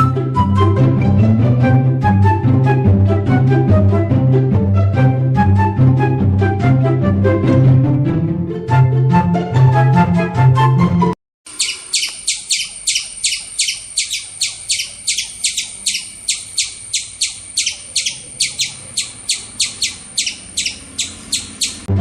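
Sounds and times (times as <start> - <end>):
bird chirping: 11.5 - 21.9.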